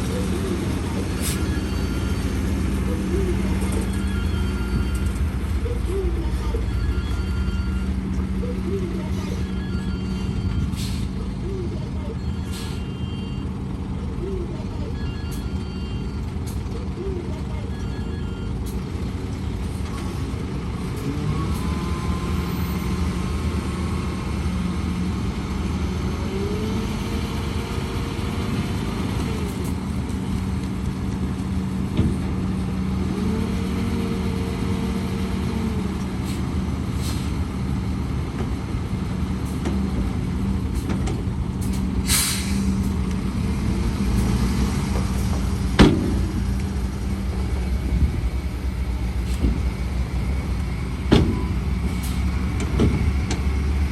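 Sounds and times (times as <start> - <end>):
diesel earthmoving machinery: 0.0 - 53.9.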